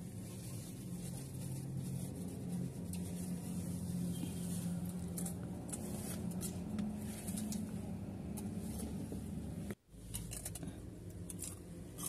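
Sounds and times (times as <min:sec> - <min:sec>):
car engine running: 0:01.0 - 0:09.8.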